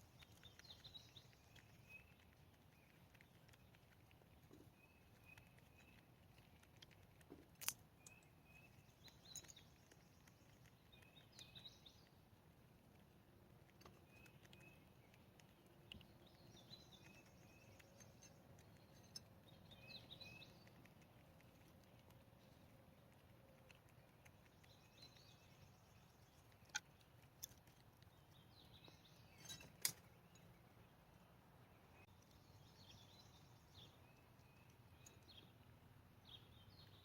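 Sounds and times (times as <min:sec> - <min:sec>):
small animals chirping: 0:00.0 - 0:29.6.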